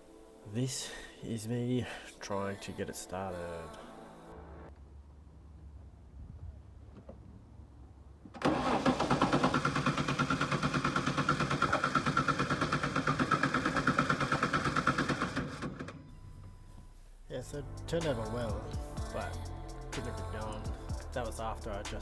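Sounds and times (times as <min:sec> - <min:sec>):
starter motor cranking engine: 0:08.4 - 0:16.0.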